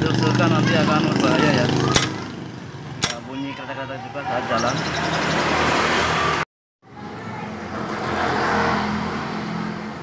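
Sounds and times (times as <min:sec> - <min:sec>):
motorcycle engine running: 0:00.0 - 0:03.3.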